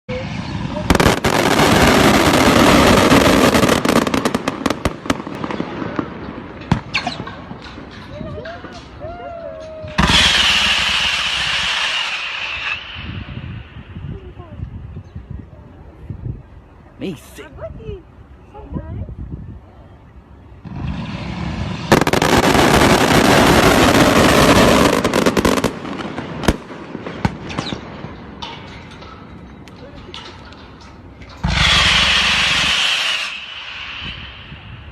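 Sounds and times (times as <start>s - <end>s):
firecrackers crackling: 0.1s - 14.4s, 20.6s - 34.9s
sharp cracks: 20.8s - 34.9s
sharp bang: 27.2s - 34.9s.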